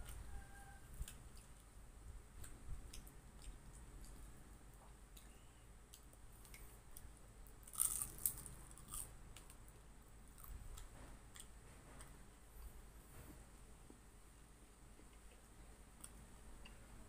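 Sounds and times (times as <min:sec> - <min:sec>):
chewing with wet clicks: 0:02.4 - 0:07.1, 0:15.0 - 0:16.8
crunchy bites into spring roll: 0:07.6 - 0:09.5.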